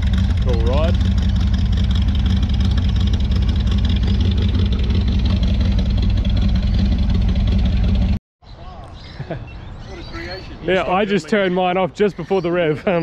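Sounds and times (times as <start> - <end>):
car engine idling: 0.0 - 8.2.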